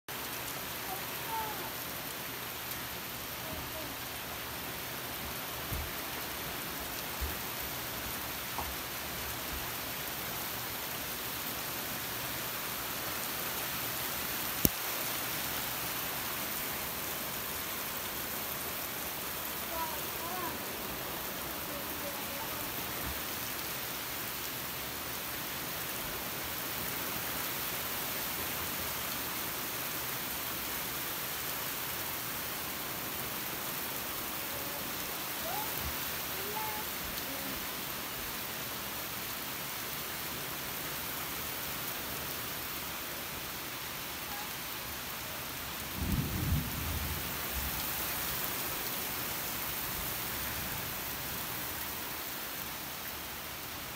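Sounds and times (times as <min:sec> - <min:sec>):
heavy rain on roofs: 0:00.0 - 0:53.9
low rumble of thunder: 0:45.9 - 0:47.9.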